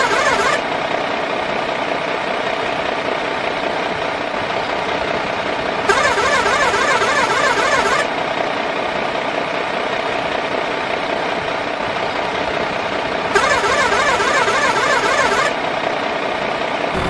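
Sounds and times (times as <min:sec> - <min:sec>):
toy truck mechanical drone: 0:00.0 - 0:00.7, 0:05.9 - 0:08.1, 0:13.3 - 0:15.6.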